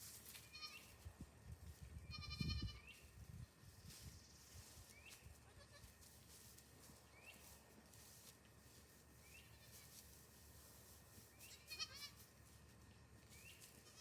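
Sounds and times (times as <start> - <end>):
goat kid bleating: 0.4 - 0.9, 2.1 - 2.9, 5.4 - 6.0, 9.5 - 10.0, 11.5 - 12.2, 13.7 - 14.0.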